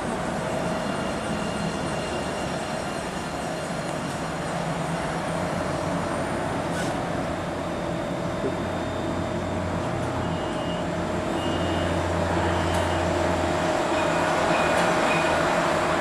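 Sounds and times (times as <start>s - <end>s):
tram electric hum: 0.0s - 16.0s
faint short high beeps: 10.2s - 10.8s.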